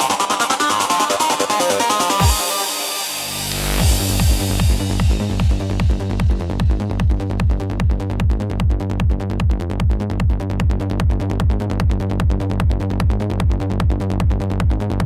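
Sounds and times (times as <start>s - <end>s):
kick drum: 2.2s - 2.6s, 3.8s - 15.0s.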